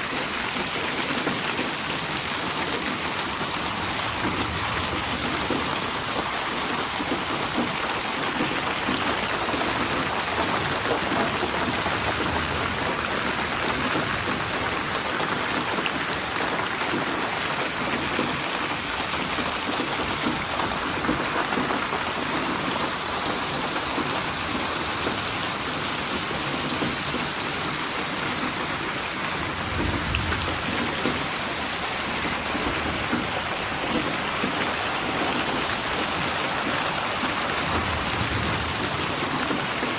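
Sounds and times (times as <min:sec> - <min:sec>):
steady rain falling: 0:00.0 - 0:39.9
low rumble of thunder: 0:03.5 - 0:07.8, 0:09.6 - 0:15.6, 0:29.2 - 0:34.2, 0:37.2 - 0:39.9.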